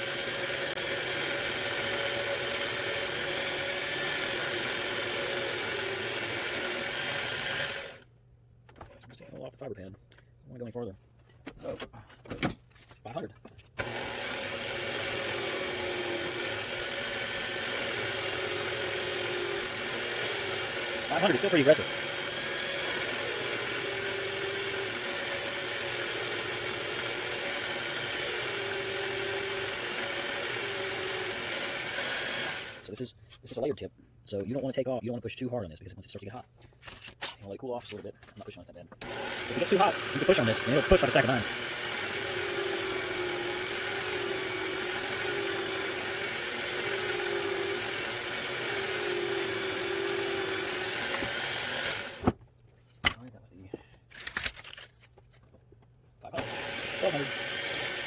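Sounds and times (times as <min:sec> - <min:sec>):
motor whirring hum: 0:13.8 - 0:32.8, 0:39.0 - 0:52.4, 0:56.4 - 0:58.0.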